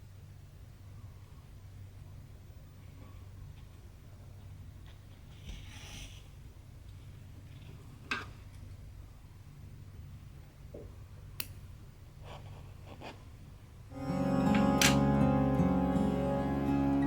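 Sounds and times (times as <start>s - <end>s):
steady low hum: 0.0s - 17.0s
plucked-string background music: 13.9s - 17.0s.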